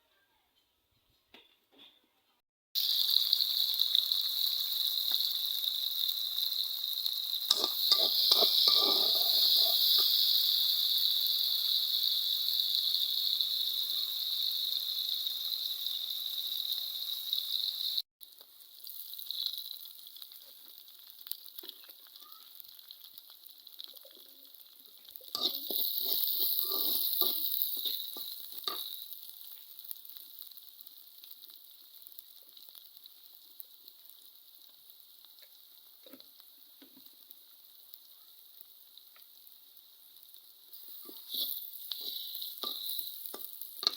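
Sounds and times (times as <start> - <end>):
food sizzling in hot oil: 2.8 - 43.9
spatula scraping a pan: 7.5 - 10.2, 25.3 - 29.1, 40.8 - 43.9.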